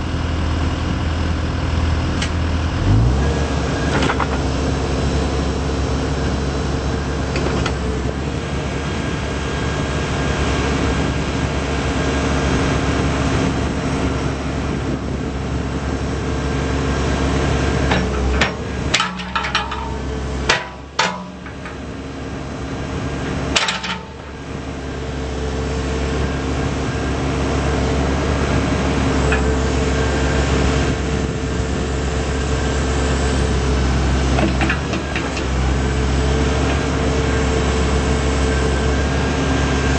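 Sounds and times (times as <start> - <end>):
diesel engine running: 0.0 - 39.9
sharp metallic clanks: 17.9 - 21.8.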